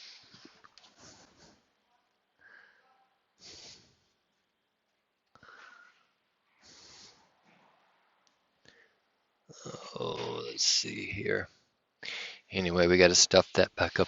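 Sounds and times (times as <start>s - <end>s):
soft breathing: 0.0s - 4.4s, 5.3s - 7.8s, 8.6s - 9.3s, 11.5s - 12.5s.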